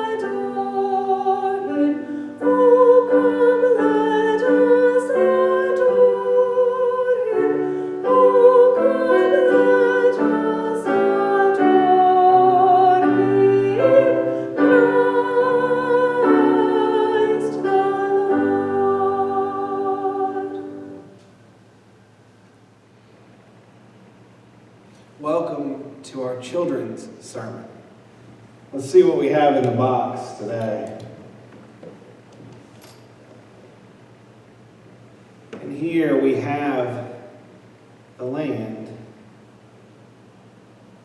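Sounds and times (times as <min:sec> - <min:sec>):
person singing a hymn: 0:00.0 - 0:21.2
piano chords: 0:00.0 - 0:21.3.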